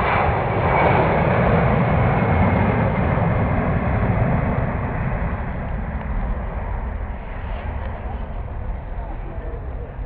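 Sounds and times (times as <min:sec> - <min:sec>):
jet engines roaring: 0:00.0 - 0:10.0.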